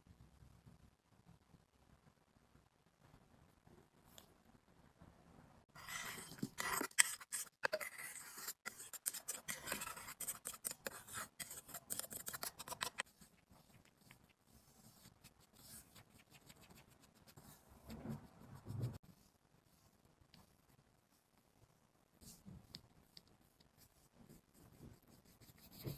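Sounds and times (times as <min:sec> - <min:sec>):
scraping at a powder compact: 0:05.8 - 0:14.2.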